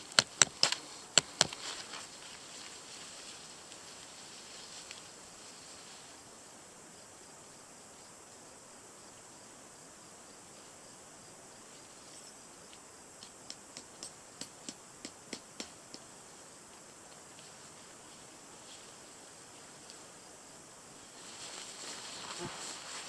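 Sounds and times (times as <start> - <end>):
faint high-pitched hiss: 0.0 - 23.0
sharp clicks or taps: 13.2 - 16.1.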